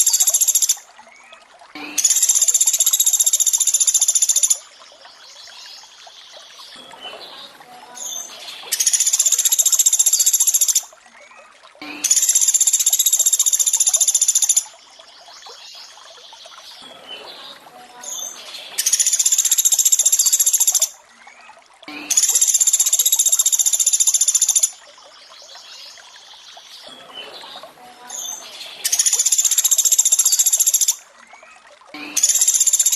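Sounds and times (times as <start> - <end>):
running water trickling: 0.0 - 32.9.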